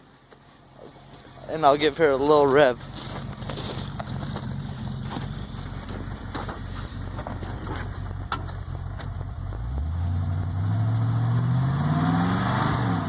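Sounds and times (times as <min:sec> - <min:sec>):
engine idling and revving: 0:00.0 - 0:13.0.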